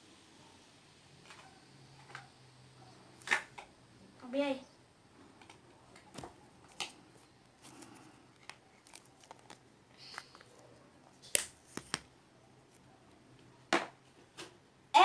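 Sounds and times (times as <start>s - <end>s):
plastic packets crinkling: 7.6s - 12.1s.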